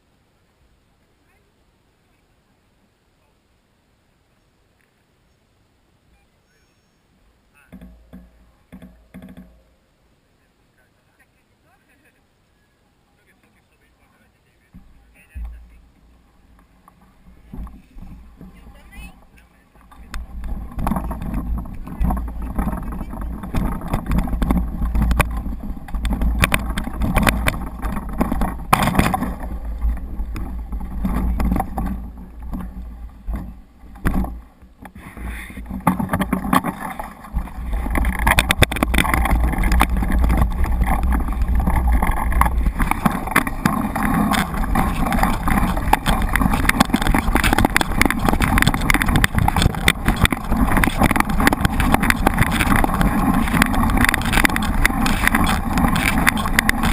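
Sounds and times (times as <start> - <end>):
steady rushing noise: 13.2 - 56.9
wind buffeting microphone: 15.2 - 56.9.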